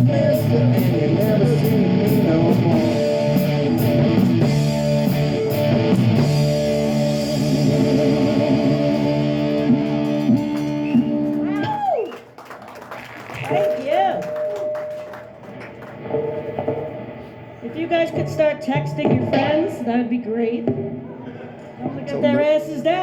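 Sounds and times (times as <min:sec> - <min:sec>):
live rock band playing: 0:00.0 - 0:11.7
drum hits: 0:18.1 - 0:19.9.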